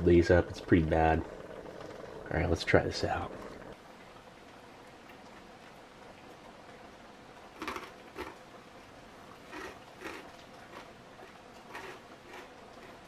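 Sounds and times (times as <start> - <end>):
person chewing crunchy food: 7.6 - 8.4, 9.4 - 13.0.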